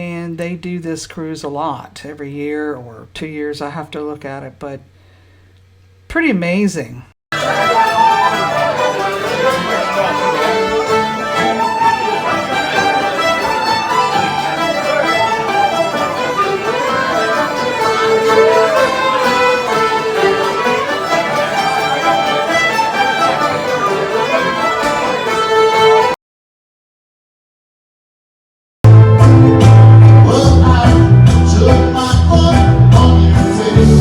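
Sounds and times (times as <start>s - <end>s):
folk tune with fiddle: 7.4s - 26.2s, 28.9s - 34.0s.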